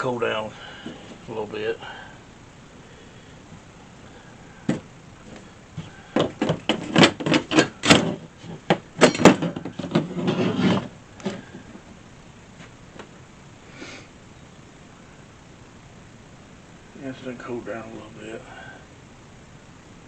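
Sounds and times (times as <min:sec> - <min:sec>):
knocks and clatters of hard objects: 0:04.7 - 0:11.6.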